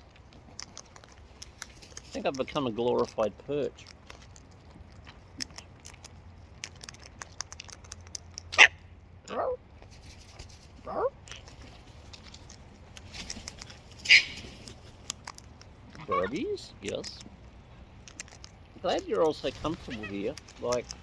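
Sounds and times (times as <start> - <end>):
faint sharp clicks and scratches: 0.0 - 8.6, 9.7 - 21.0
cockatoos squawking: 14.0 - 14.6, 15.9 - 16.6, 19.6 - 20.4.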